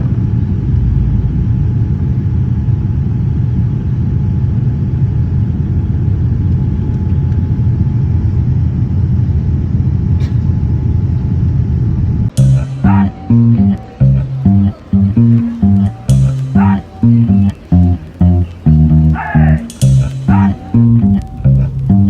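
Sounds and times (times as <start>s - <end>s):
airliner cabin engine drone: 0.0s - 22.0s
faint constant hum: 0.0s - 22.0s.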